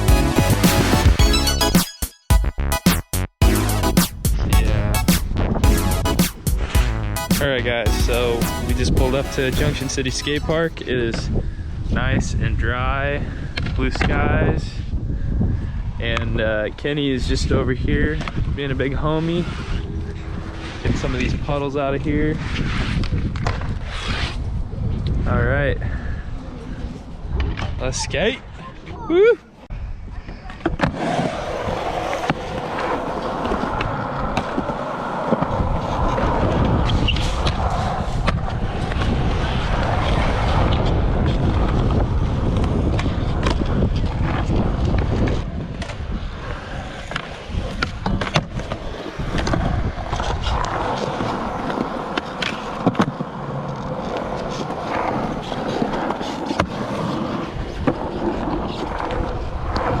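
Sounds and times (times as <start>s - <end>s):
skateboard wheels rolling on concrete: 0.0s - 2.0s, 2.6s - 60.0s
skateboard pops and landings: 30.6s - 40.8s.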